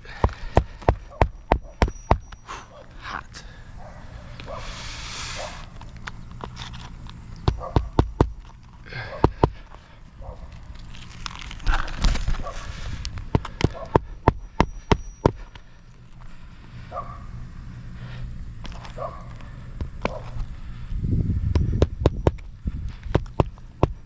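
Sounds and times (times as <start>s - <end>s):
hammer striking roofing nails: 0.0s - 2.4s, 7.4s - 8.4s, 9.2s - 9.7s, 13.3s - 15.5s, 23.1s - 24.0s.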